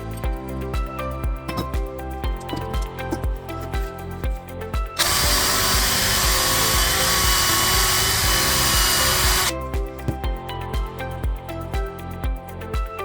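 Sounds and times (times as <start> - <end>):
background music with beat: 0.0 - 13.0
power tool whining: 5.0 - 9.5.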